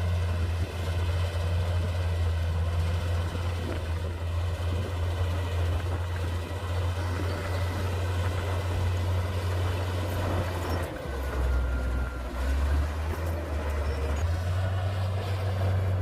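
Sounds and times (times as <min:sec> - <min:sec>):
bulldozer diesel engine droning: 0:00.0 - 0:16.0.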